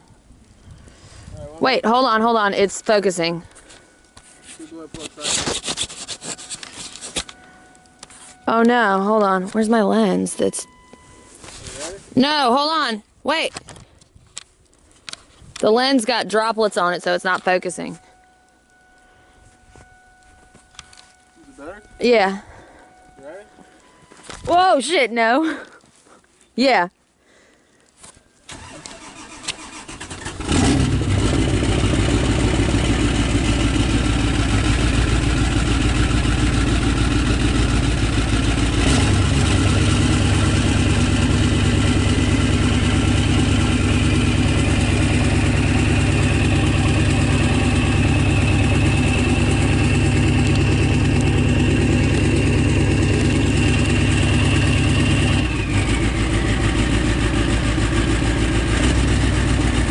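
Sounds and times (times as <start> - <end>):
faint high whine: 17.3 - 24.8
diesel engine cranking: 28.5 - 59.9
diesel engine idling: 28.5 - 59.9.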